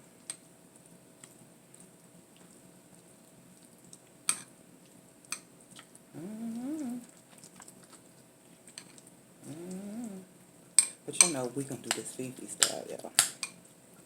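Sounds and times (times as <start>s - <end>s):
short pitched vocal sound: 6.1s - 7.1s, 9.4s - 10.3s.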